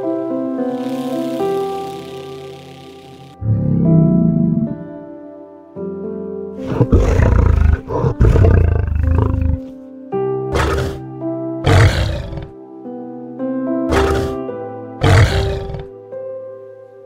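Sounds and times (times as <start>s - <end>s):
soft piano music: 0.0s - 17.0s
lion roaring: 3.4s - 5.0s, 6.6s - 9.7s, 10.5s - 11.0s, 11.6s - 12.5s, 13.9s - 14.4s, 15.0s - 15.9s.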